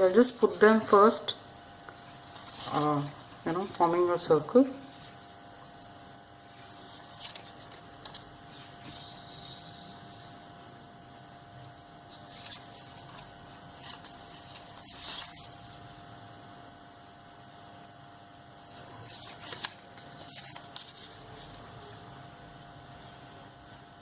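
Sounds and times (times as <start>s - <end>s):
faint steady hum: 0.0s - 24.0s
paper rustling and scraping: 2.2s - 5.9s, 6.5s - 10.8s, 12.0s - 15.9s, 18.6s - 23.5s.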